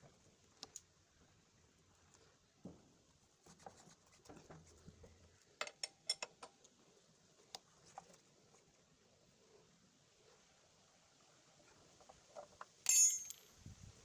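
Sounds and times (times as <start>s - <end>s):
metallic hand tool clinks: 12.8s - 13.6s.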